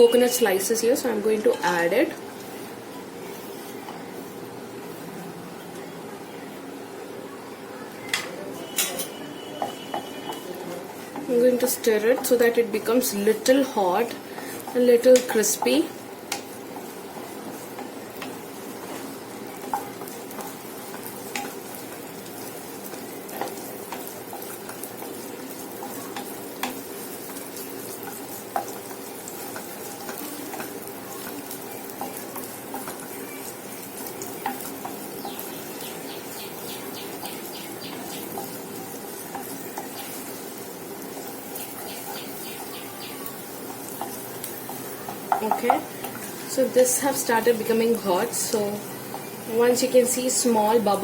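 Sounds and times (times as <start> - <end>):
coconut slices sizzling in oil: 0.0 - 7.2, 8.0 - 51.0
spoon scraping pan: 8.6 - 35.5.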